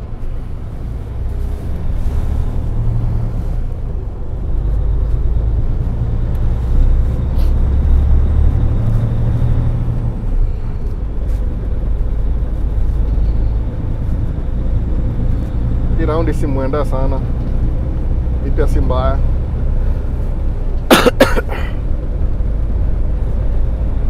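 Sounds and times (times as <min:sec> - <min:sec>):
truck engine and road rumble: 0:00.0 - 0:24.0.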